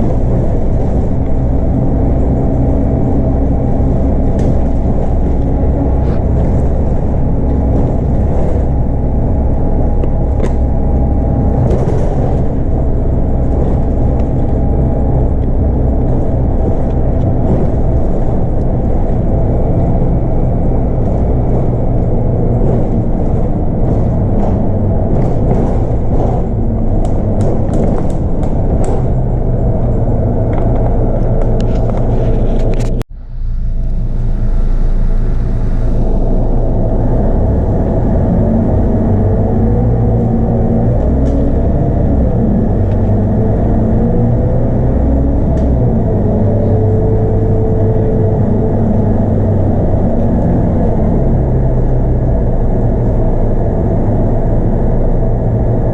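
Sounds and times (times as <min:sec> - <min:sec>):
body rattles and clicks: 0:00.0 - 0:33.1
bus diesel engine droning: 0:00.0 - 0:55.9.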